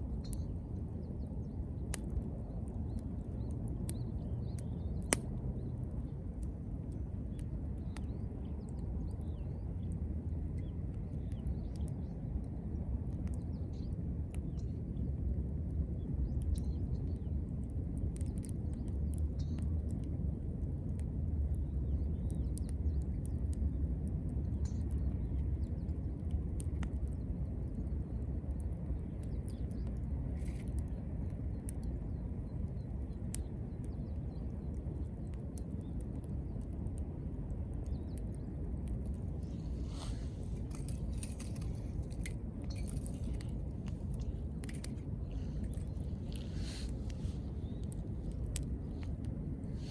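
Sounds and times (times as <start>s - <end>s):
campfire crackling and popping: 0.0s - 49.9s
low rumble: 38.7s - 49.9s
soft hiss: 45.3s - 49.9s.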